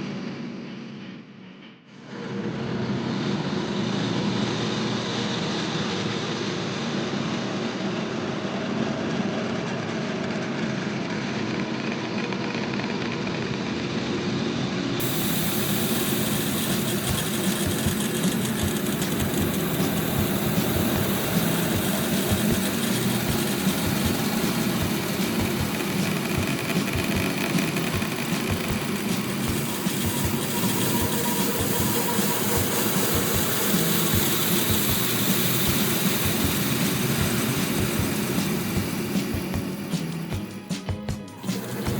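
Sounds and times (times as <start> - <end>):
farm machinery engine running: 15.0 - 41.9.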